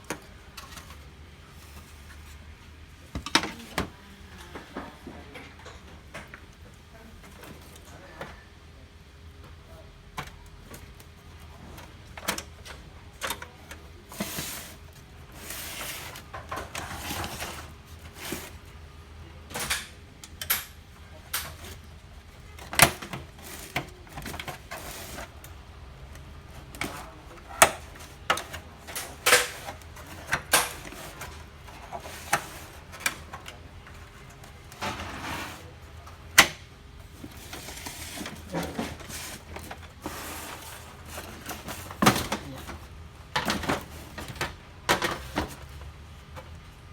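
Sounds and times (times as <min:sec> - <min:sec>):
plastic parts clicking and scraping: 0:19.5 - 0:35.7, 0:36.3 - 0:46.6.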